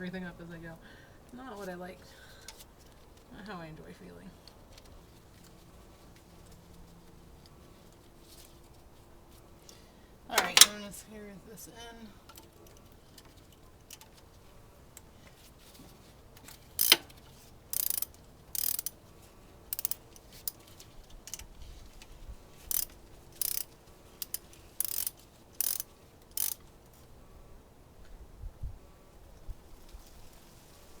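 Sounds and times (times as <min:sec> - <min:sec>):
ratchet wrench clicking: 0:16.8 - 0:19.0, 0:19.7 - 0:20.6, 0:22.7 - 0:26.6.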